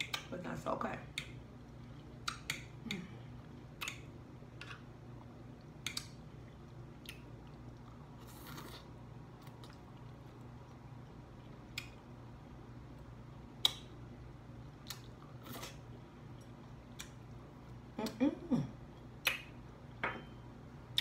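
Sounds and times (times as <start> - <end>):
faint low hum: 0.0 - 21.0
person chewing green beans: 1.1 - 18.2
wet mouth clicks and smacks: 2.2 - 2.8, 3.8 - 4.8, 5.8 - 6.2, 13.6 - 13.9, 16.9 - 17.3, 19.2 - 19.6.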